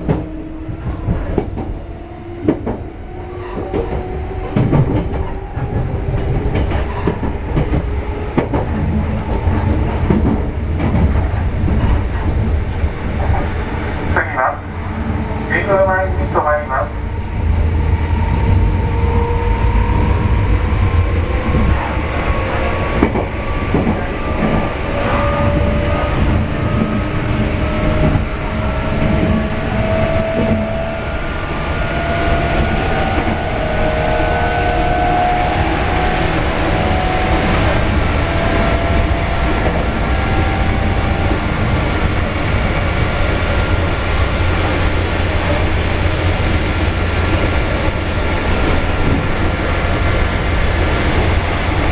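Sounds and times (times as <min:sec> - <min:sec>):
low train rumble: 0:00.0 - 0:51.9
wheels clacking over rail joints: 0:02.4 - 0:14.2.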